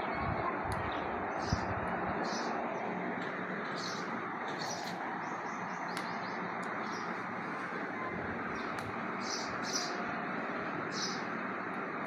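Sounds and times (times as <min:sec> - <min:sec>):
high bird chirps: 0:08.5 - 0:10.0.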